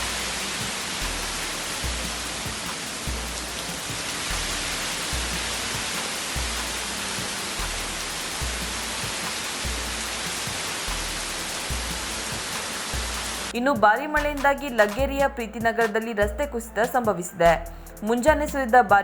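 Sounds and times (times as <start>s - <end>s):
heavy rain hissing: 0.0s - 13.5s
background music with bass pulse: 0.0s - 19.0s.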